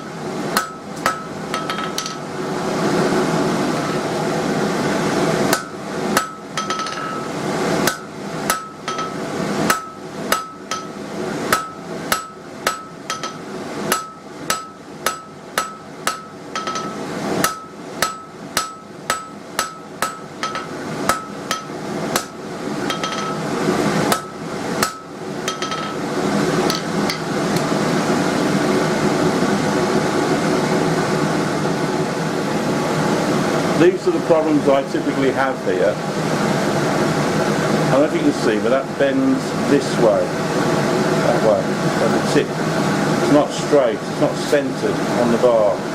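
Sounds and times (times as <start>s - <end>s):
hammer striking steel on anvil: 0.6s - 2.2s, 5.5s - 23.5s, 24.1s - 26.0s, 26.7s - 27.3s.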